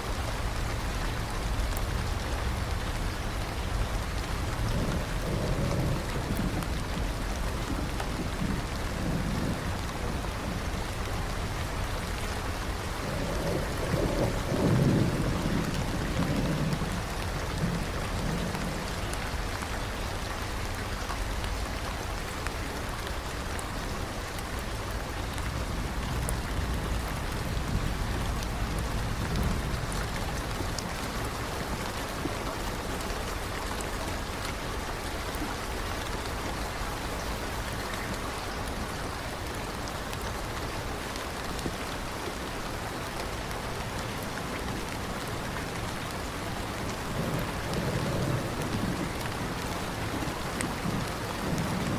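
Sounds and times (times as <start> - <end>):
steady rain falling: 0.0 - 51.9
distant thunder rumbles: 0.3 - 22.1, 23.2 - 34.0, 45.6 - 51.9.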